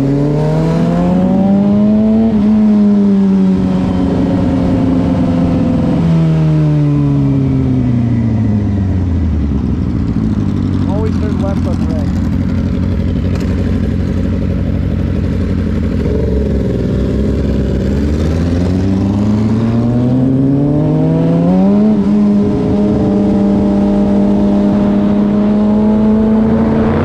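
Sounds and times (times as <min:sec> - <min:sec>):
motorcycle engine pulling away: 0:11.7 - 0:27.0.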